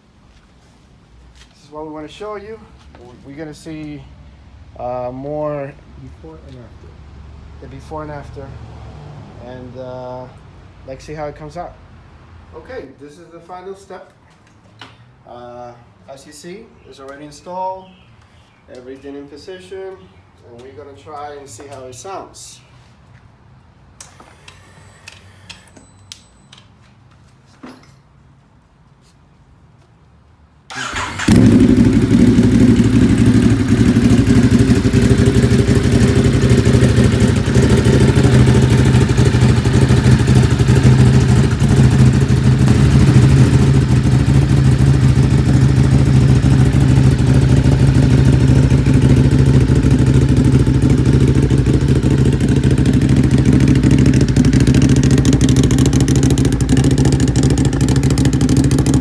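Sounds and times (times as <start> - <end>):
motorcycle engine starting and idling: 30.7 - 59.0.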